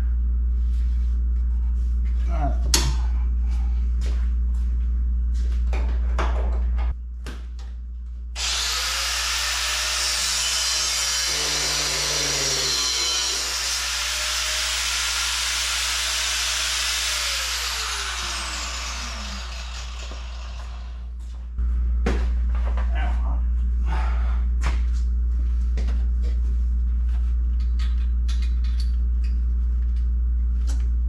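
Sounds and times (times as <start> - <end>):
power tool cutting steel: 8.4 - 21.0.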